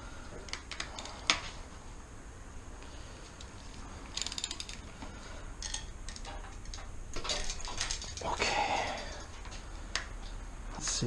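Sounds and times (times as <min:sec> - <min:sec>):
ratchet wrench clicking: 0:04.1 - 0:04.8.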